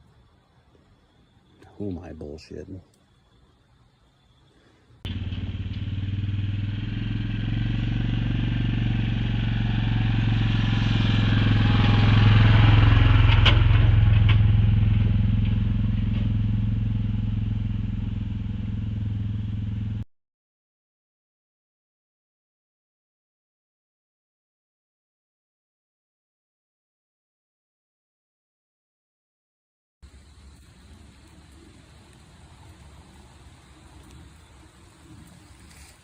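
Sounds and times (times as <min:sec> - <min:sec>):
quad bike engine running: 0:05.1 - 0:20.0.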